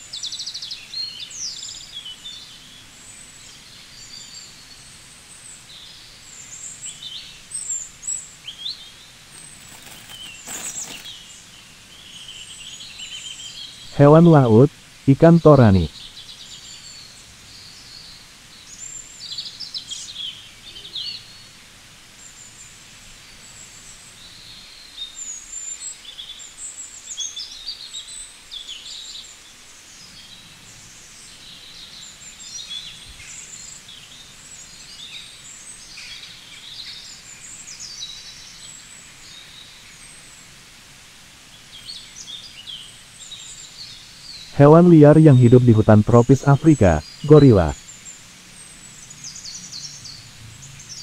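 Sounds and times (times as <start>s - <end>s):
birds chirping and twittering: 0.0s - 14.7s, 22.2s - 40.5s, 41.5s - 51.0s
faint steady hiss: 0.0s - 51.0s.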